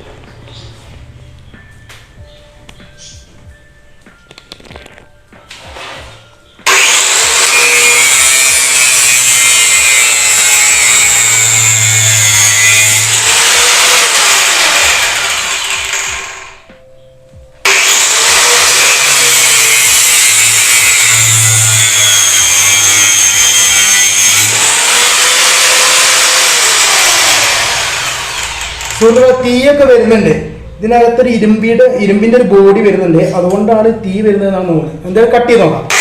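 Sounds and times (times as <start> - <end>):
angle grinder cutting metal: 5.6 - 16.7, 17.6 - 29.6.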